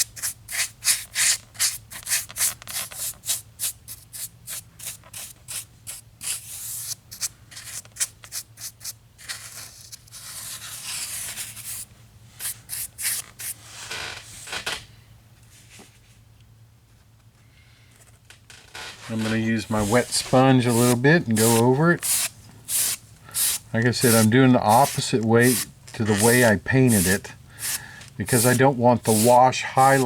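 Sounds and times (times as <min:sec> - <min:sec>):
paintbrush scrubbing: 0:19.1 - 0:30.0.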